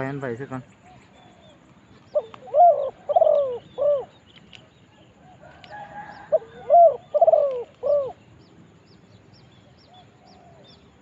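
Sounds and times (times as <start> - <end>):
small birds chirping: 0.0 - 11.0
dove cooing: 0.8 - 8.2, 9.6 - 11.0.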